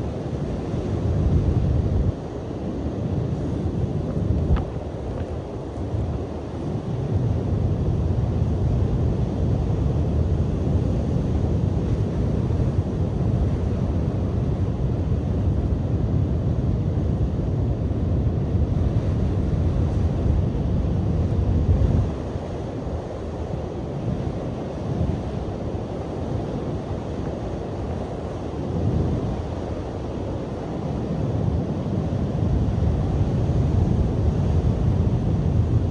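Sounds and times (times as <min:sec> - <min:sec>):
wind buffeting microphone: 0:00.0 - 0:35.9.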